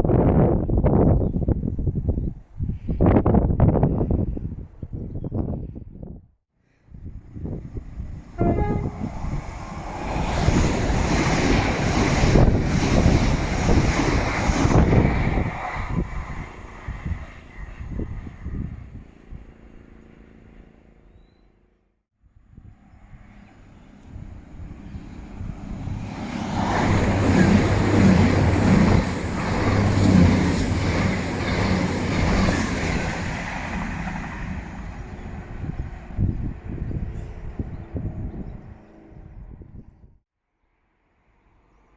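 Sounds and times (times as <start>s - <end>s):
wind buffeting microphone: 0.0s - 19.6s, 22.5s - 40.2s
train passing at speed: 6.8s - 21.0s, 22.5s - 39.9s
brief pitched tone: 8.4s - 9.4s.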